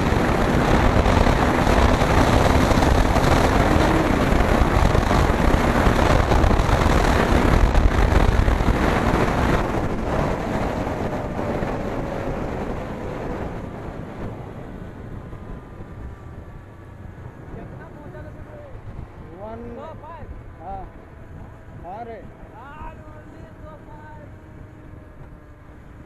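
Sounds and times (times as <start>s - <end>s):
motorcycle engine: 0.0s - 19.6s
wind rushing over microphone: 0.0s - 26.0s.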